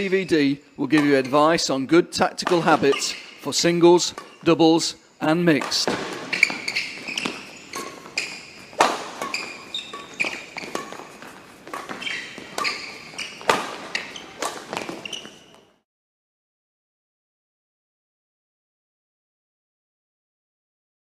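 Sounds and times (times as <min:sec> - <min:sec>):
shoe squeaks: 0:00.0 - 0:01.6, 0:02.4 - 0:04.5, 0:05.2 - 0:15.8
racket hitting shuttlecock: 0:02.3 - 0:03.4, 0:04.0 - 0:04.5, 0:05.5 - 0:15.6
footwork on court: 0:05.5 - 0:15.7.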